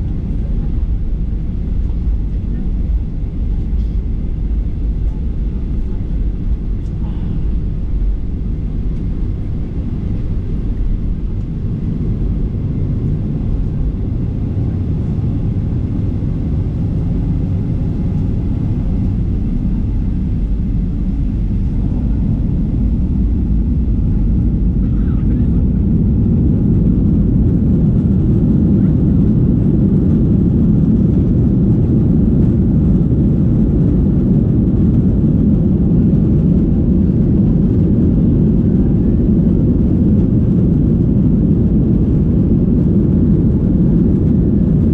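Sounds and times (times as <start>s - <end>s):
jet engine rumble inside cabin: 0.0s - 44.9s.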